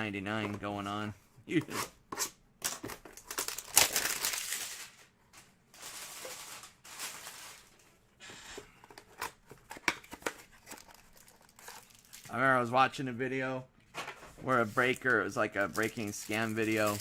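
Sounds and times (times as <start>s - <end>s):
plastic wrapper crinkling: 3.1s - 7.9s, 10.2s - 12.4s, 14.8s - 17.0s.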